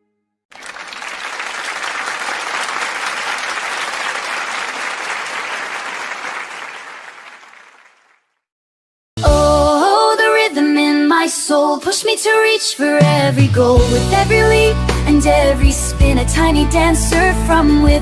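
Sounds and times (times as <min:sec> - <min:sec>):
audience applause: 0:00.5 - 0:08.2.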